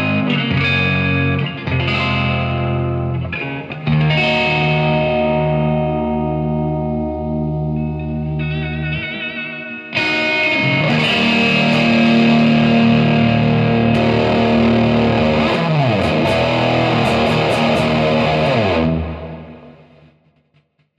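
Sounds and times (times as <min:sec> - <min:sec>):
guitar notes sliding down: 0:00.0 - 0:20.2
distorted electric guitar chord: 0:04.2 - 0:20.2.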